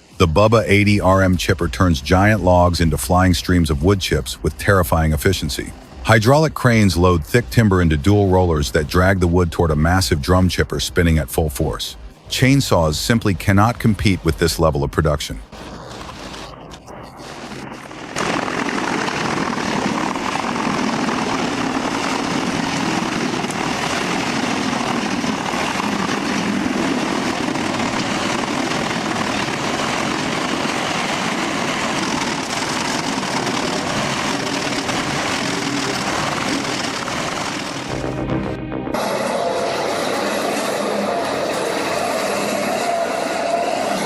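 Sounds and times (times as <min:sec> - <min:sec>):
wood chipper running: 0:17.2 - 0:44.0.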